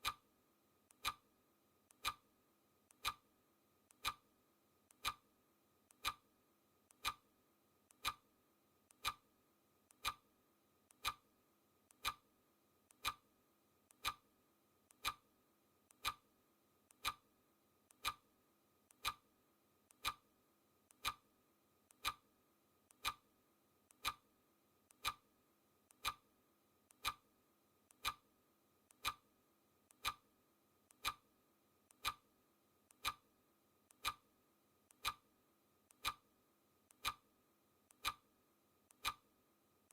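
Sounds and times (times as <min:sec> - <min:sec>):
mechanical clock ticking: 0:00.0 - 0:00.2, 0:00.9 - 0:01.2, 0:01.9 - 0:02.2, 0:02.9 - 0:03.2, 0:03.9 - 0:04.2, 0:04.9 - 0:05.2, 0:05.9 - 0:06.2, 0:06.9 - 0:07.2, 0:07.9 - 0:08.2, 0:08.9 - 0:09.2, 0:09.9 - 0:10.2, 0:10.9 - 0:11.2, 0:11.9 - 0:12.2, 0:12.9 - 0:13.2, 0:13.9 - 0:14.2, 0:14.9 - 0:15.2, 0:15.9 - 0:16.2, 0:16.9 - 0:17.2, 0:17.9 - 0:18.2, 0:18.9 - 0:19.2, 0:19.9 - 0:20.3, 0:20.9 - 0:21.3, 0:21.9 - 0:22.3, 0:22.9 - 0:23.2, 0:23.9 - 0:24.2, 0:24.9 - 0:25.2, 0:25.9 - 0:26.2, 0:26.9 - 0:27.3, 0:27.9 - 0:28.3, 0:28.9 - 0:29.3, 0:29.9 - 0:30.3, 0:30.9 - 0:31.2, 0:31.9 - 0:32.2, 0:32.9 - 0:33.3, 0:33.9 - 0:34.3, 0:34.9 - 0:35.3, 0:35.9 - 0:36.3, 0:36.9 - 0:37.3, 0:37.9 - 0:38.3, 0:38.9 - 0:39.3.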